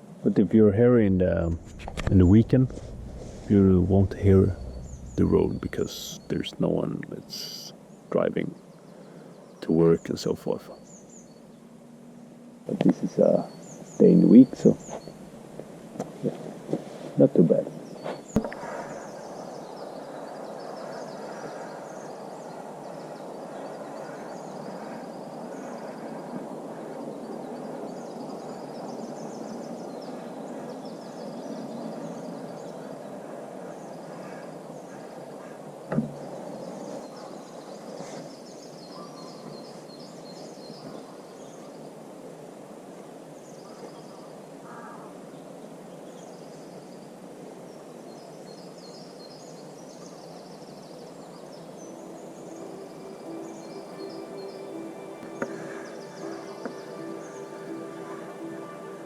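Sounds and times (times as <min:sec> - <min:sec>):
distant road traffic hum: 0:00.8 - 0:07.7.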